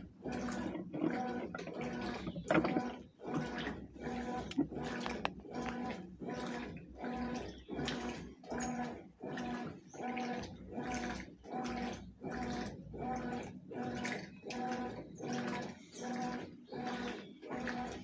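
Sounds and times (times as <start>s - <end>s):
washing machine motor humming: 0.0s - 18.0s
water and clothes sloshing: 0.0s - 18.0s.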